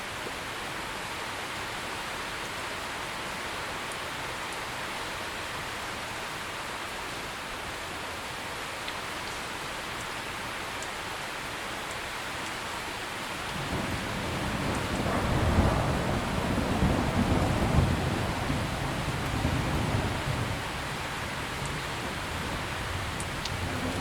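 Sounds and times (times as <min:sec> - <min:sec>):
heavy rain: 0:00.0 - 0:24.0
rolling thunder rumble: 0:13.4 - 0:24.0.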